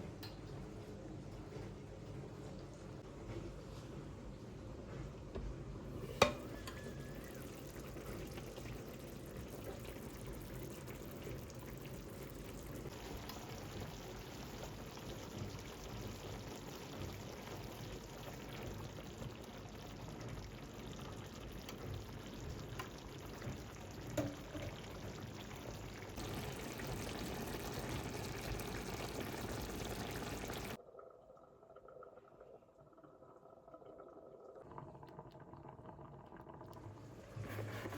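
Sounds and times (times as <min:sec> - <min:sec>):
liquid hissing in a pan: 0:26.2 - 0:30.8.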